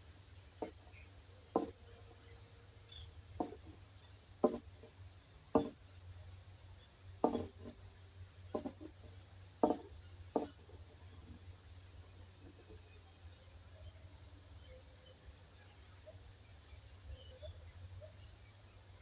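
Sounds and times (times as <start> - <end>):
high insect chorus: 0.0 - 19.0
short low knocks: 0.6 - 1.8, 3.4 - 3.8, 4.4 - 5.8, 7.2 - 7.8, 8.5 - 10.8.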